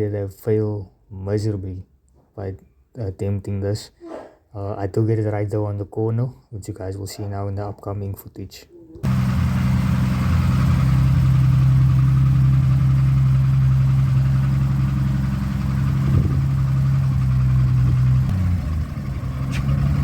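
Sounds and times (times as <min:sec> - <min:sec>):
car engine at steady revs: 0:09.0 - 0:20.0.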